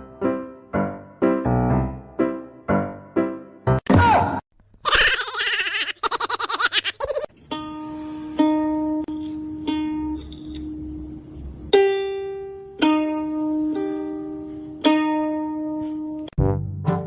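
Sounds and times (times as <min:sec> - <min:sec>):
slow plucked string melody: 0:07.3 - 0:17.0.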